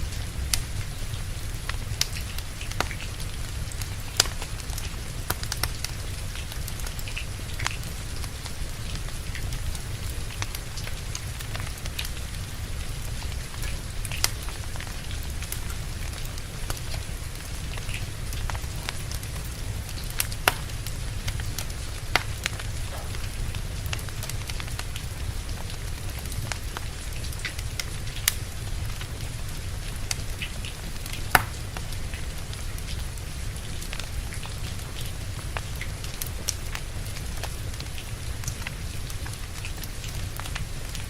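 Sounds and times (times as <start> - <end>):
steady rain: 0.0 - 41.0
wood fire crackling: 0.0 - 41.0
fire popping: 0.2 - 12.3, 12.9 - 33.3.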